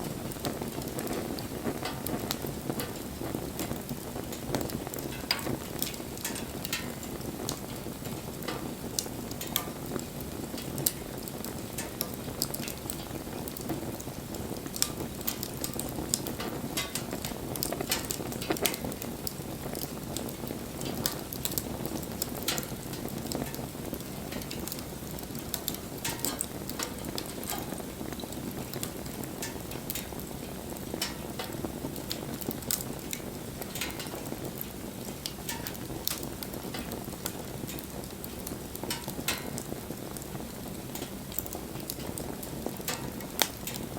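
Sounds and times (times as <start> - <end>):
bonfire crackling and popping: 0.0 - 43.9
low rush of flame: 0.0 - 43.9.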